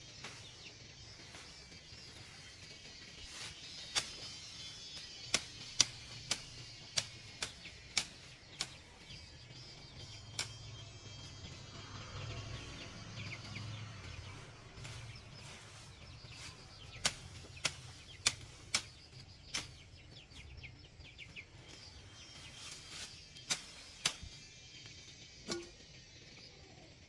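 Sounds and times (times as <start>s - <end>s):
faint bird chirps: 0.0s - 27.0s
sharp clicks: 3.8s - 10.9s, 16.3s - 20.0s.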